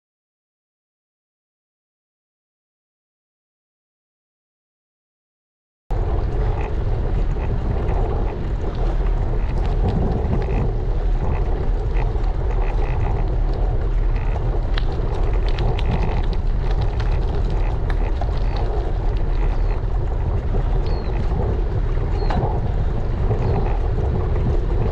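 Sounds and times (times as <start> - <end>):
small clicks and ticks: 5.9 - 24.9
wind buffeting microphone: 5.9 - 24.9.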